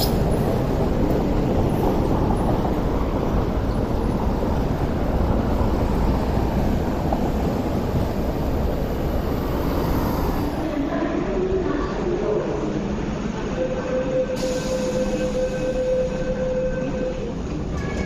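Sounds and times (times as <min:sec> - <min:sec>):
road traffic rumble: 0:00.0 - 0:13.5
electric train running on tracks: 0:00.0 - 0:18.0.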